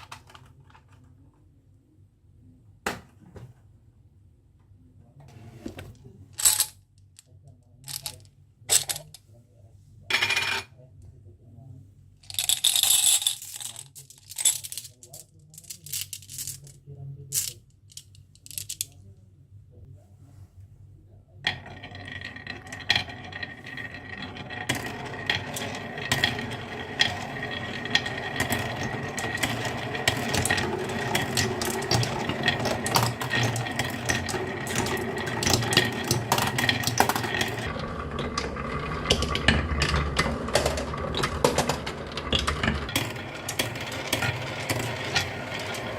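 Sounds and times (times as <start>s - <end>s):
marbles rolling and knocking: 21.5s - 45.9s.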